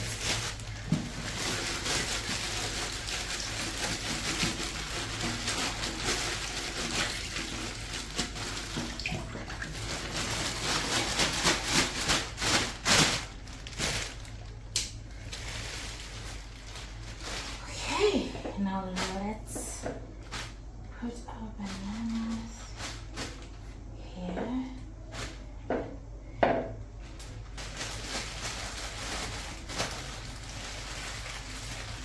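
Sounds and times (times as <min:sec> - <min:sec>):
item being rinsed by hand: 0:00.0 - 0:20.6
water running from a tap: 0:00.9 - 0:10.2.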